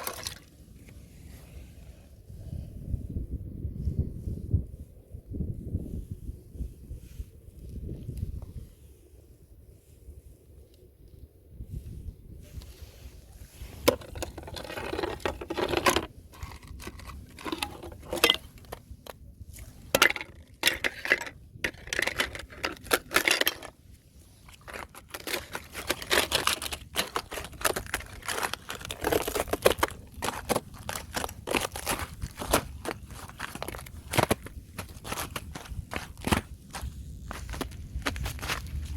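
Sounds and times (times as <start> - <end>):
thin ice crunching and cracking: 0.0 - 0.6, 13.4 - 38.9.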